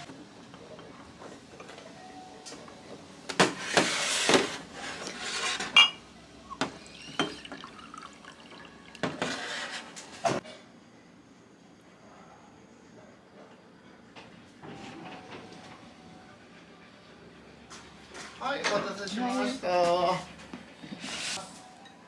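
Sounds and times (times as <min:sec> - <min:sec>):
glass and dishes clinking: 0:05.0 - 0:06.0, 0:06.6 - 0:09.4
liquid pouring into a glass: 0:06.7 - 0:09.3.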